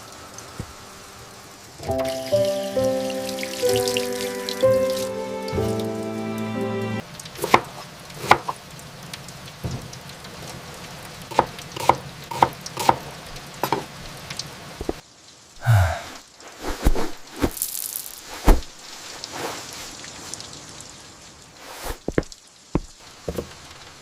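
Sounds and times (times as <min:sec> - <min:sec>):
steady hiss: 0:00.0 - 0:07.0.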